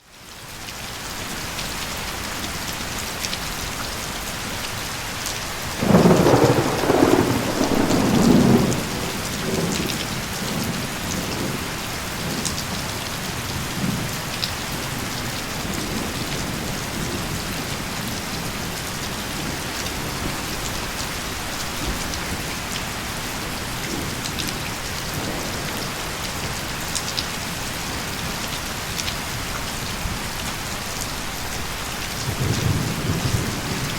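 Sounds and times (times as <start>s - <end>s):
heavy rain falling: 0.0s - 33.9s
thunder rumbling: 5.8s - 12.8s.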